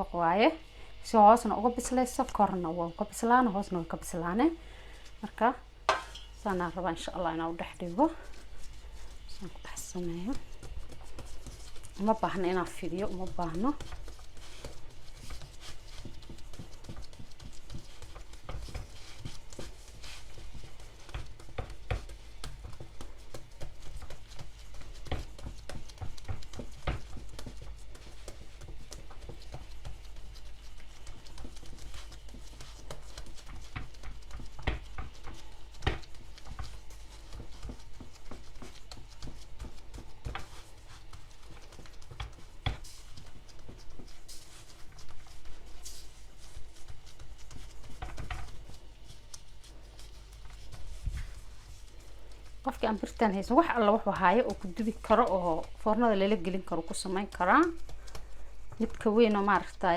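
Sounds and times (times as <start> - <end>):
steady low hum: 0.0 - 59.9
hands tapping dough on metal pan: 15.3 - 40.7.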